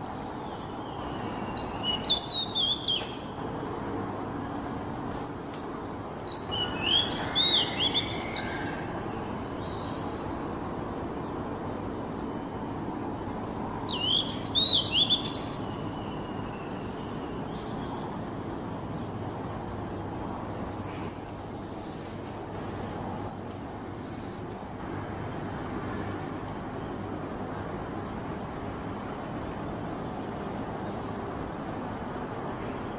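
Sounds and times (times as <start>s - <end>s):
steady background hiss: 0.0s - 32.9s
bird singing whistled notes: 0.1s - 3.3s, 6.2s - 8.8s, 13.9s - 17.9s.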